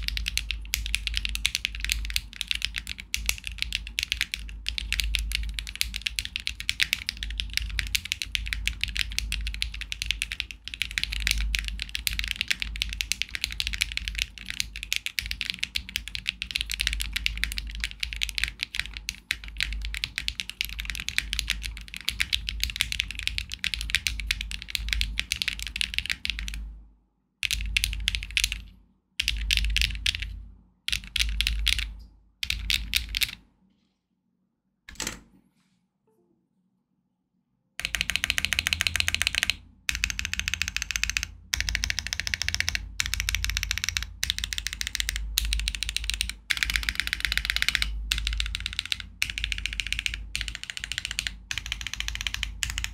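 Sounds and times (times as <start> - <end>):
mechanical keyboard typing: 0.0 - 26.6, 27.4 - 33.4, 37.8 - 52.9.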